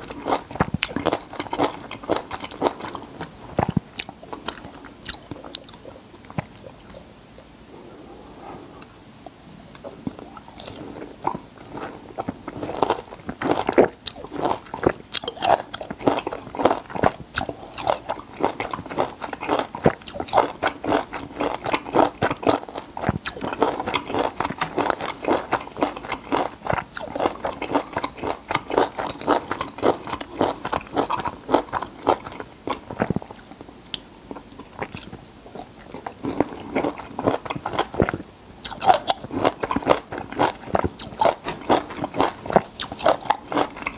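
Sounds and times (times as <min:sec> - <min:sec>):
crunchy chewing of citrus fruit: 0:00.0 - 0:07.1, 0:09.7 - 0:43.9.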